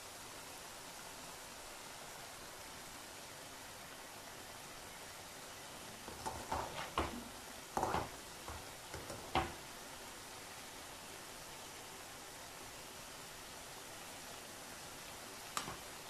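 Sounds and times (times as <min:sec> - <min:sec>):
fries sizzling in hot oil: 0:00.0 - 0:16.0
utensil knocking against pan: 0:06.1 - 0:09.6.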